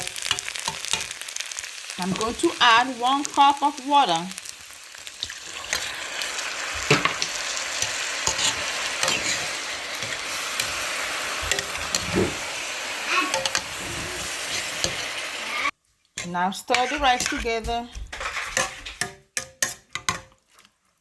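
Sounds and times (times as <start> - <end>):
rice sizzling in a pot: 0.0 - 20.6
water poured into pot: 5.0 - 15.7
spoon knocking and scraping pot: 6.7 - 12.4, 13.3 - 15.1, 16.2 - 20.4.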